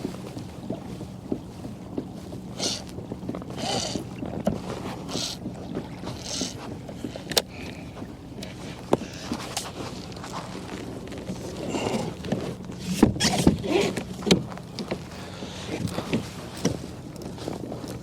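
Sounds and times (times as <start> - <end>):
water splashing around kayak: 0.0 - 18.0
knocks on hull: 12.3 - 15.0.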